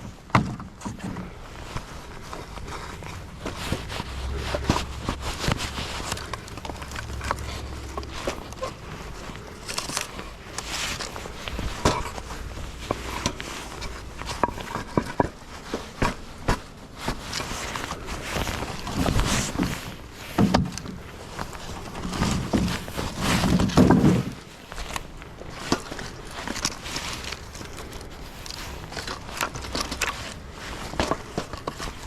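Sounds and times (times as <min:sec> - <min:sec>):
footsteps: 0:00.0 - 0:32.0
heavy wood thumps: 0:00.3 - 0:01.4, 0:22.1 - 0:24.4.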